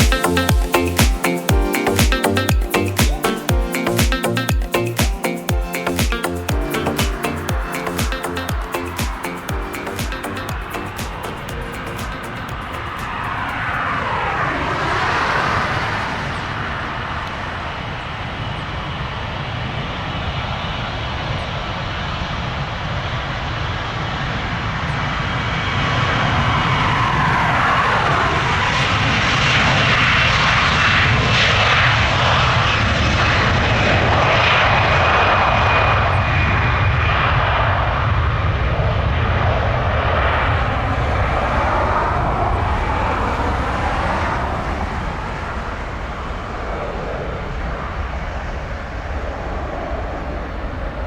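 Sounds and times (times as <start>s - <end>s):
jet airliner passing: 0.0s - 51.0s
faint high engine whine: 10.4s - 51.0s.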